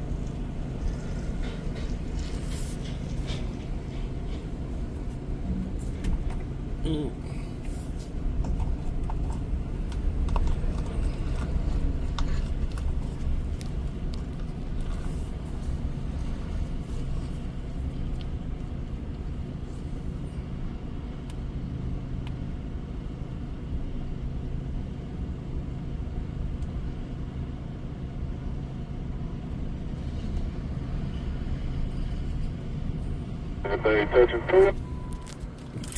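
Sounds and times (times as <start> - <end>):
truck diesel engine rumble: 0.0 - 35.9.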